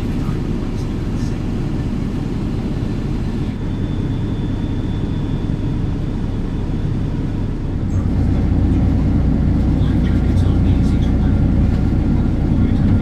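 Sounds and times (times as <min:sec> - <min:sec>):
ferry engines rumbling: 0:00.0 - 0:13.0
faint high whine: 0:00.2 - 0:13.0.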